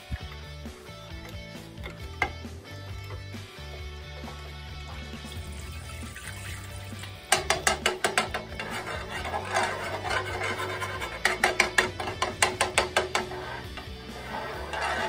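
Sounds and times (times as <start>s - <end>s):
metal spoon scraping frying pan: 5.6s - 15.0s.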